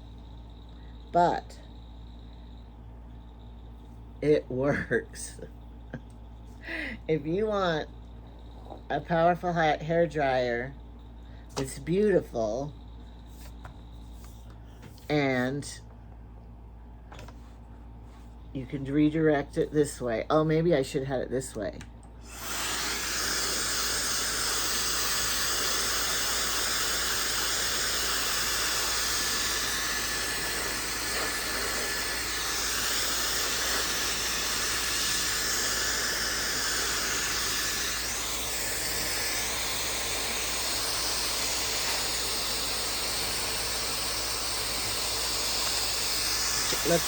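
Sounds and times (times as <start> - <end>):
hair dryer blowing: 22.2 - 47.0.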